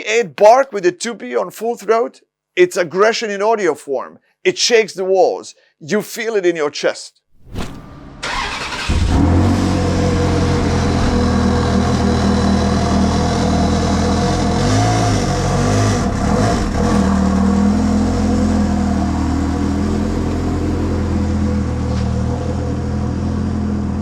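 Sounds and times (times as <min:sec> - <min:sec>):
engine throttle blips: 0:07.8 - 0:22.6
car engine idling: 0:08.2 - 0:14.7, 0:16.6 - 0:22.8.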